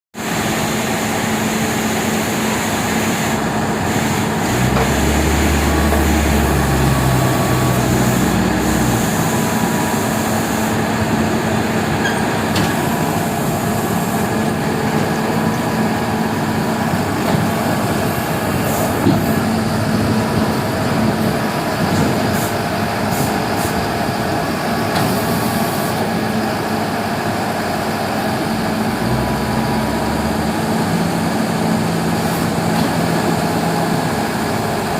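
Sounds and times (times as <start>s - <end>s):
heavy engine running: 0.2s - 34.9s
deep hum: 28.5s - 32.7s.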